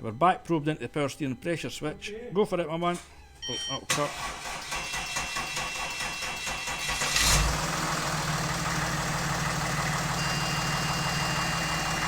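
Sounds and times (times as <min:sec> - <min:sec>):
diesel engine starting and idling: 0:03.9 - 0:12.0.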